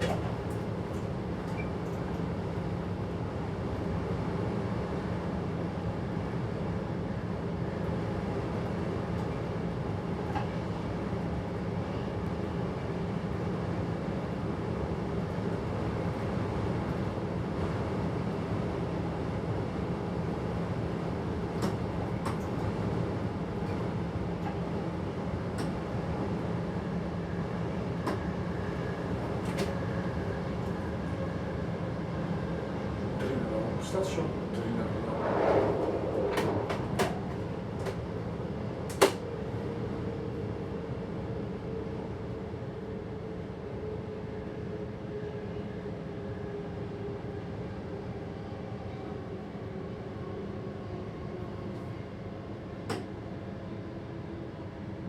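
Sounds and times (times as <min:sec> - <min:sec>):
train running noise: 0:00.0 - 0:03.5, 0:21.5 - 0:39.9.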